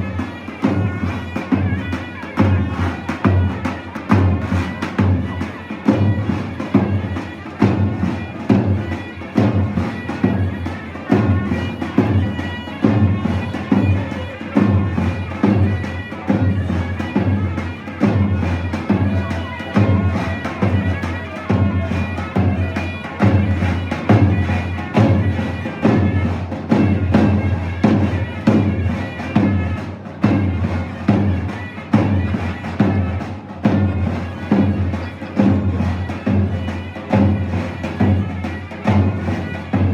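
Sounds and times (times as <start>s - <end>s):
heavy drum beat: 0.0s - 39.9s.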